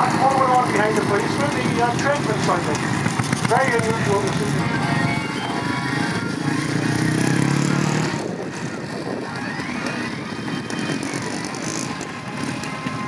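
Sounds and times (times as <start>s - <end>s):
crackly outdoor din: 0.0s - 13.0s
vehicle engine running: 0.0s - 13.0s.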